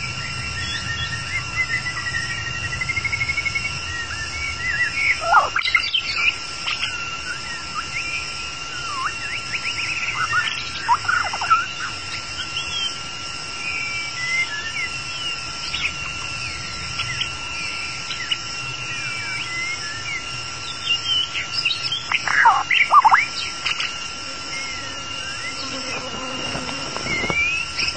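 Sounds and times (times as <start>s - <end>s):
steady high whine: 0.0s - 27.9s
bird singing whistles and chirps: 0.2s - 13.0s.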